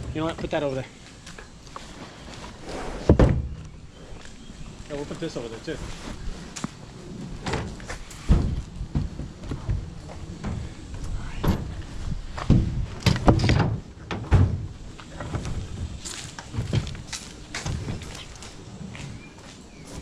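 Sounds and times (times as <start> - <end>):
junk thumping in truck bed: 3.0 - 3.6, 7.3 - 18.3.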